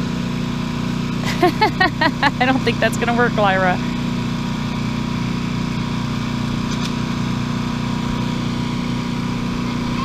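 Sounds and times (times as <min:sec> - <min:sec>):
wood chipper engine drone: 0:00.0 - 0:10.0
thin steady whine: 0:01.2 - 0:04.2.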